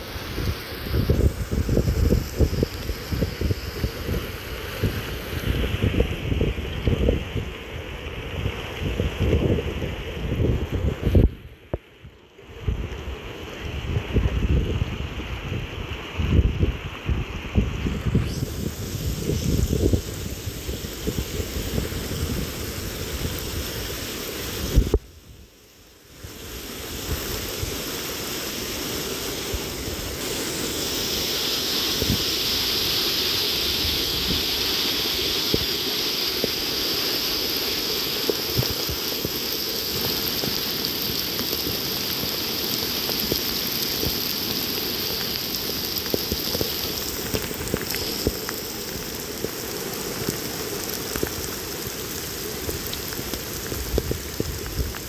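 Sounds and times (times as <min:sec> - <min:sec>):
rain falling: 0:00.0 - 0:08.8, 0:18.3 - 0:55.0
raindrops ticking sharply: 0:26.2 - 0:55.0.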